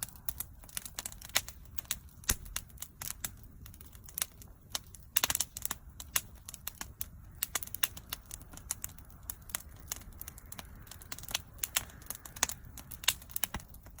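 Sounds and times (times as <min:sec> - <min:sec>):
bonfire snaps and pops: 0:00.0 - 0:14.0
low rush of burning fire: 0:00.0 - 0:14.0.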